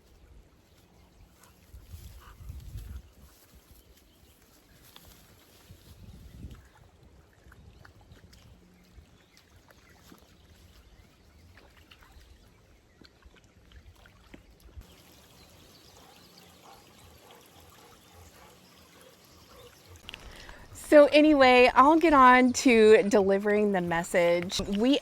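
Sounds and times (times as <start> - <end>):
creek trickling: 6.4 - 25.0.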